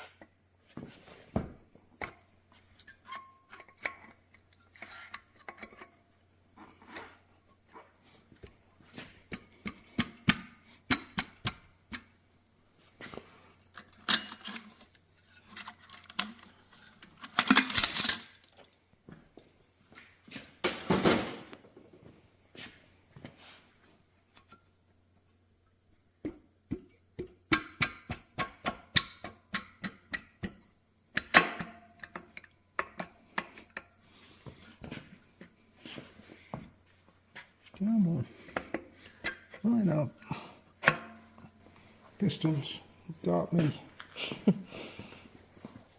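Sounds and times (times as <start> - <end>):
metal engine parts clinking: 13.8 - 18.7.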